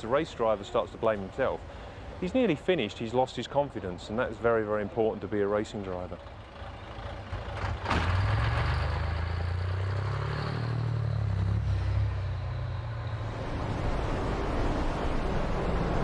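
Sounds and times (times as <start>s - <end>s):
truck engine running hard: 6.2s - 16.0s
rushing noise: 10.2s - 16.0s.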